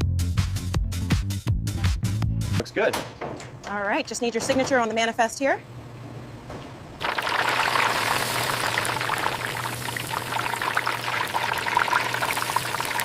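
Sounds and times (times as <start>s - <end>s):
chicken frying in hot oil: 7.0s - 13.0s.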